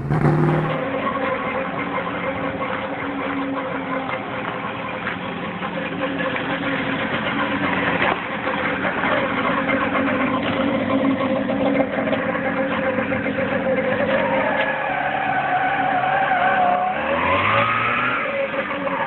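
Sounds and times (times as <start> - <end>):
small car engine idling: 0.0 - 14.4.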